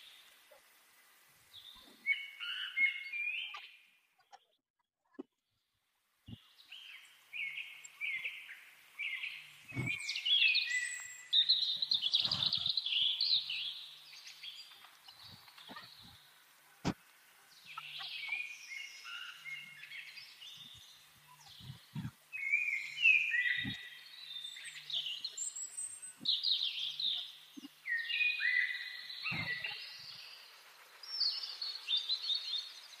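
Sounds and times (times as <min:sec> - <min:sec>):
birds chirping and singing: 0:06.3 - 0:16.3, 0:17.6 - 0:33.0.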